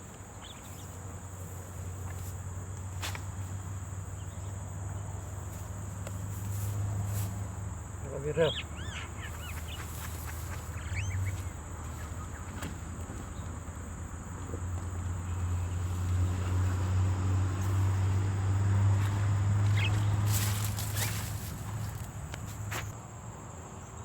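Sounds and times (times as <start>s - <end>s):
high insect drone: 0.0s - 24.0s
bird call: 8.3s - 12.7s, 19.7s - 21.3s.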